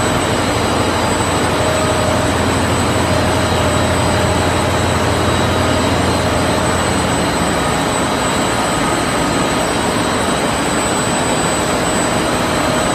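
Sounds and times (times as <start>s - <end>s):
thin high whine: 0.0s - 12.9s
washing machine running: 0.0s - 12.9s.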